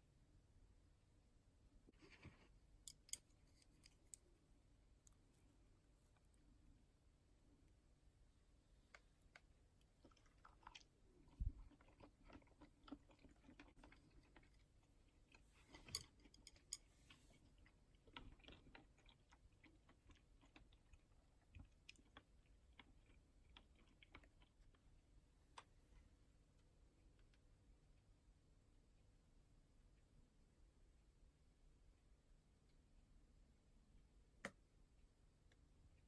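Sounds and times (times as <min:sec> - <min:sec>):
person chewing food: 0:08.9 - 0:25.0.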